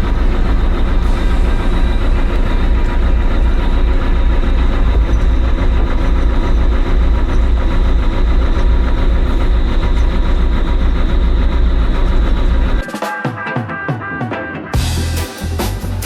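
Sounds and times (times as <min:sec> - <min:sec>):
construction machine engine rumbling: 0:00.0 - 0:12.8.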